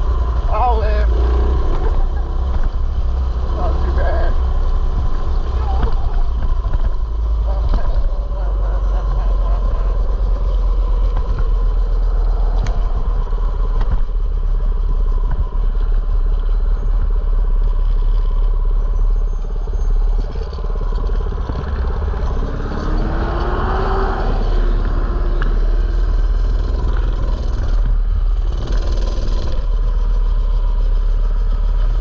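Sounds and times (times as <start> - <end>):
small engine low rumble: 0.0 - 32.0
rising tone: 21.2 - 27.4.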